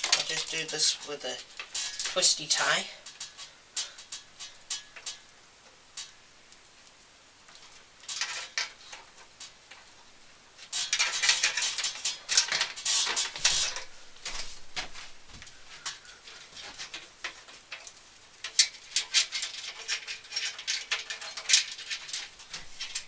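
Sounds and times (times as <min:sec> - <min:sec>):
rustling and scraping: 0:00.0 - 0:06.2, 0:06.9 - 0:23.0
cables clicking and tapping: 0:00.0 - 0:23.0.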